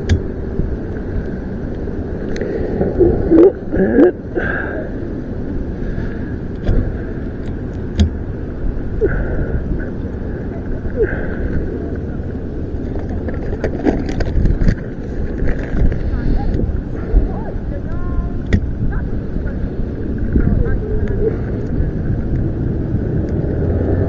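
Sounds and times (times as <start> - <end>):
wiper blade clicks: 0.0 - 0.6, 6.5 - 8.4, 15.4 - 19.6
wind rumble on microphone: 0.0 - 24.0.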